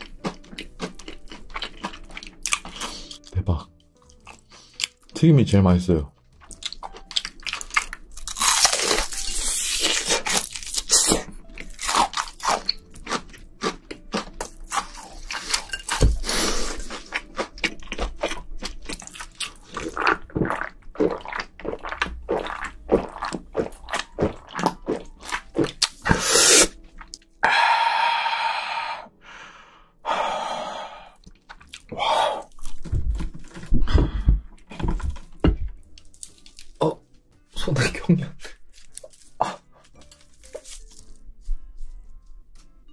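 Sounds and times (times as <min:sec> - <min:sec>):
crunching fried shrimp: 0:00.0 - 0:03.4, 0:04.0 - 0:05.2, 0:06.4 - 0:27.3, 0:31.2 - 0:33.6, 0:35.9 - 0:37.1, 0:38.4 - 0:41.3.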